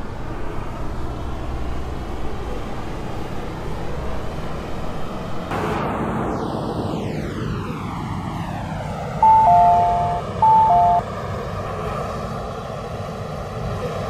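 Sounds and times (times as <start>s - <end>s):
train and machinery rumble: 0.0s - 14.0s
two-note electronic chime: 9.2s - 11.0s.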